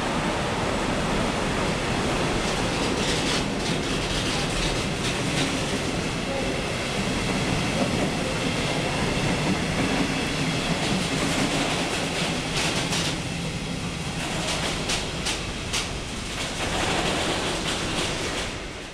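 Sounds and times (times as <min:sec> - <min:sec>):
train rumbling past: 0:00.0 - 0:18.9
wheel clacks over rail joints: 0:14.2 - 0:18.7.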